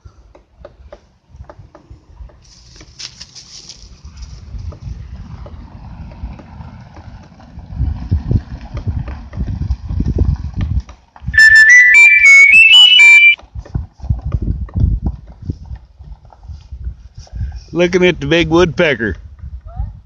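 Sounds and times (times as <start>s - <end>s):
whistled run of notes: 11.4s - 13.4s.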